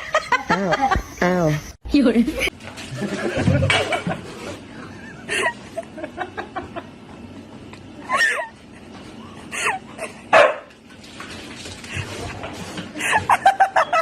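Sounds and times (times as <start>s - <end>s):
dog barking: 10.3s - 10.7s.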